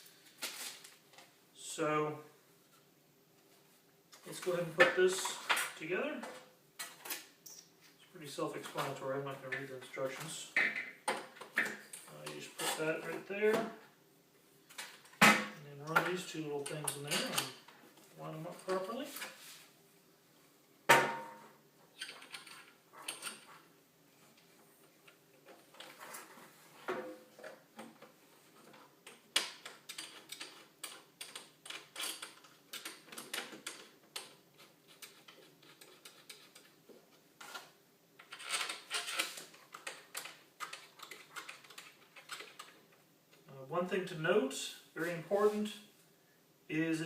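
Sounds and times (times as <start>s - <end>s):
metal detector parts clicking and rattling: 37.4s - 42.8s.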